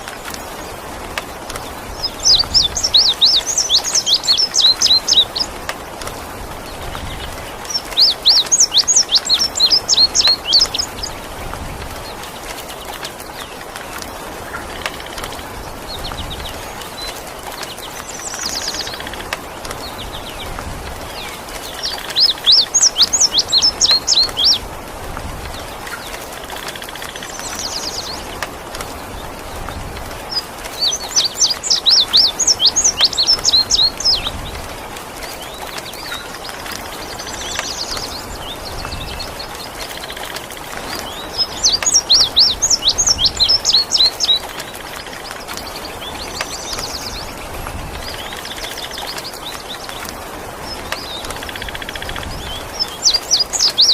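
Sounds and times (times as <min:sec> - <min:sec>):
rain hiss: 0:00.0 - 0:53.9.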